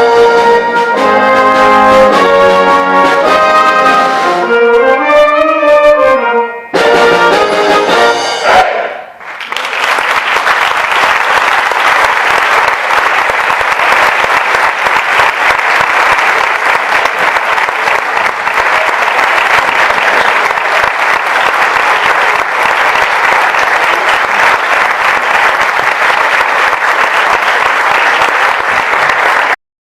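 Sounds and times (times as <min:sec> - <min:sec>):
audience applauding: 0:09.2 - 0:29.6.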